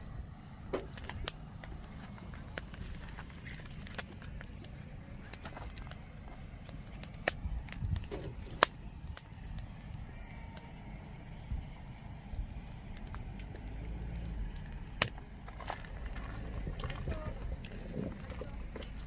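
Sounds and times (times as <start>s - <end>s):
campfire crackling and popping: 0.0s - 19.0s
low steady rumble: 0.0s - 19.0s.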